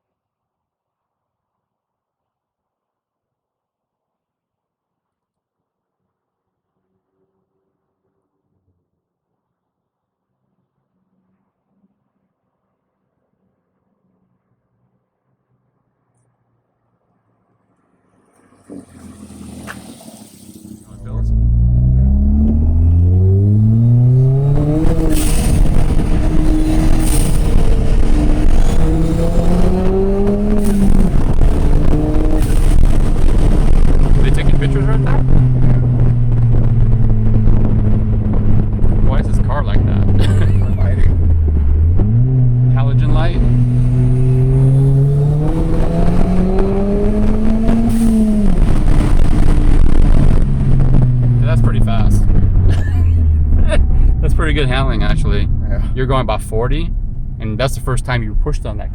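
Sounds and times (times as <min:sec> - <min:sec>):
car engine accelerating hard: 0:18.1 - 0:58.9.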